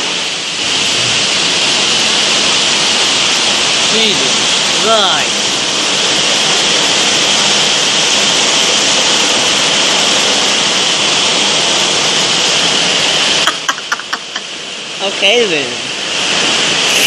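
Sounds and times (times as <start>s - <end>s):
storm wind blowing hard: 0.0s - 13.5s.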